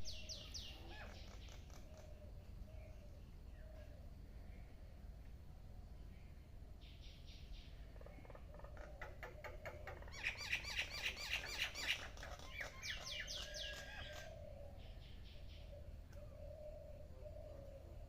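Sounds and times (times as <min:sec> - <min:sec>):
martins chirping and chattering: 0:07.4 - 0:17.6.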